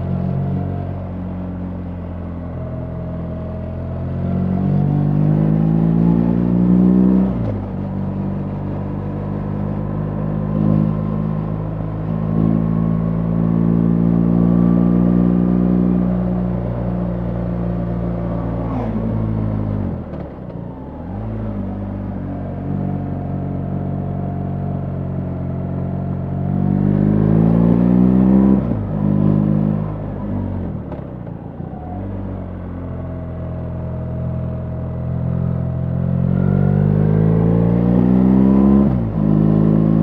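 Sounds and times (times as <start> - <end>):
motorcycle engine revving: 12.3 - 20.5.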